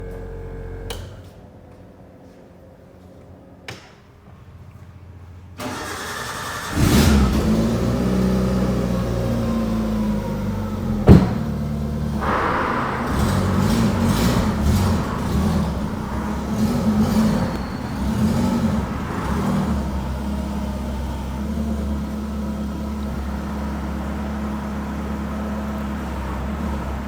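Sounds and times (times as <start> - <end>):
car engine starting and idling: 0.0 - 1.4, 5.6 - 27.0
sharp bang: 12.2 - 21.2.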